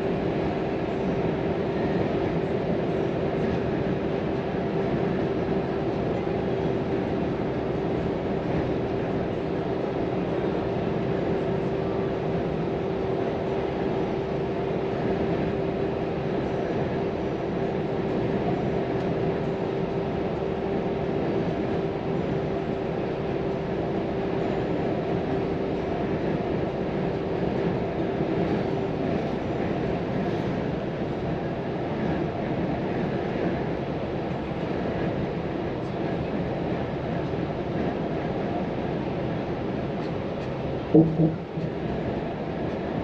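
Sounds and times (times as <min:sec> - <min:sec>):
steady hum: 0:40.8 - 0:42.5
truck engine from inside cab: 0:40.9 - 0:42.3.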